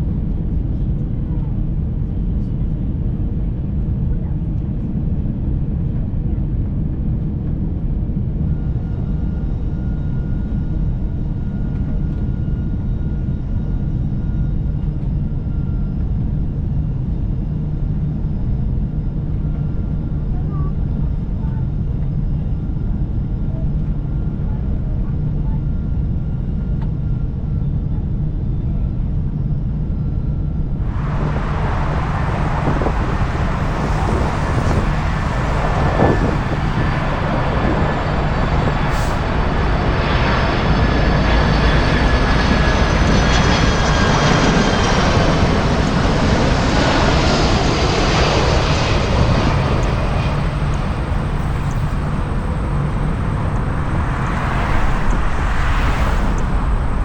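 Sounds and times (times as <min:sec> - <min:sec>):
jet engines roaring: 0:30.6 - 0:57.0
whining jet tones: 0:30.7 - 0:57.0.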